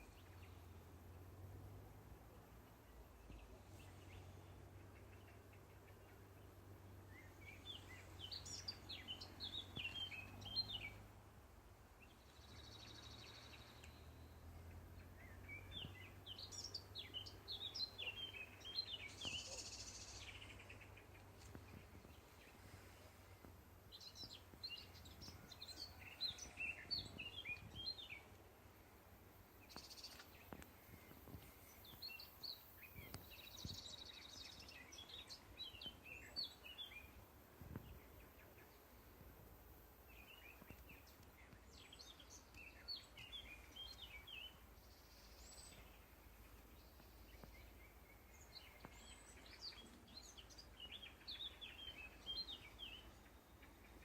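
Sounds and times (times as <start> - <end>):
songbird twittering: 12.0 - 28.4, 40.1 - 54.0.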